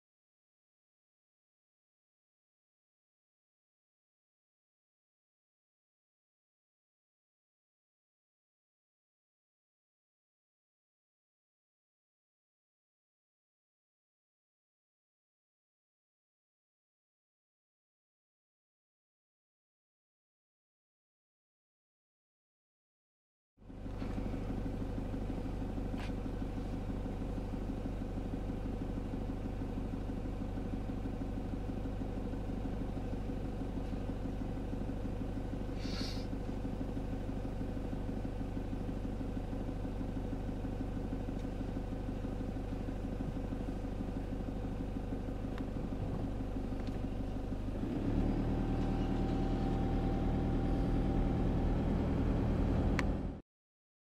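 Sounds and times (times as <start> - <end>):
vehicle engine idling: 23.6 - 53.4
vehicle pulling away: 23.7 - 28.0, 45.1 - 53.4.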